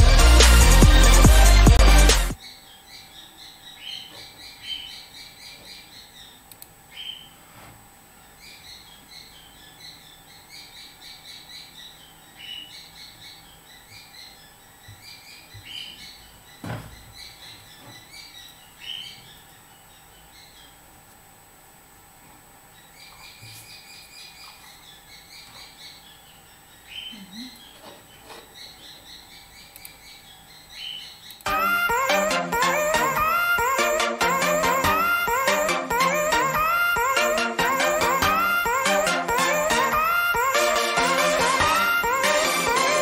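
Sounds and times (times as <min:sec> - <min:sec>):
small birds chirping: 0:02.4 - 0:21.7, 0:22.3 - 0:43.0
dull thump: 0:16.6 - 0:17.0.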